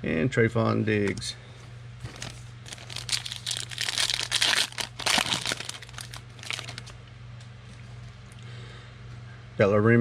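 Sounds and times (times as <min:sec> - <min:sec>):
steady low hum: 0:00.0 - 0:10.0
foil wrapper crinkling: 0:02.0 - 0:07.0.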